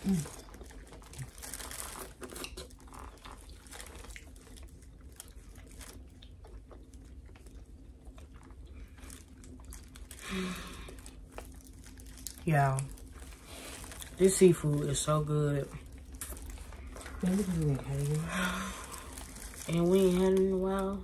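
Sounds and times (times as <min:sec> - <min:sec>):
chewing and lip smacking: 0:02.0 - 0:10.2, 0:15.9 - 0:17.2.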